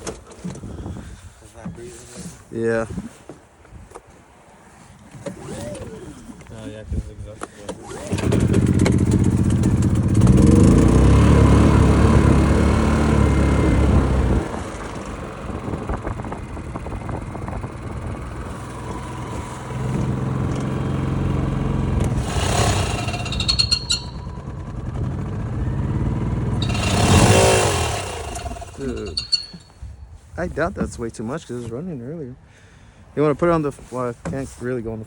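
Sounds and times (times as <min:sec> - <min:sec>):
generator engine running: 0:08.0 - 0:29.6.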